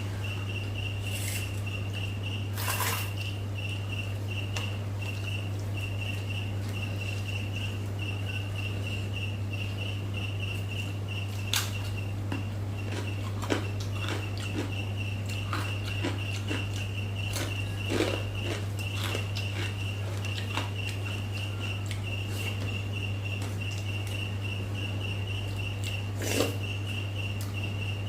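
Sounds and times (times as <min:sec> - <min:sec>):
steady low hum: 0:00.0 - 0:28.0
chewing smacks and clicks: 0:10.8 - 0:22.6.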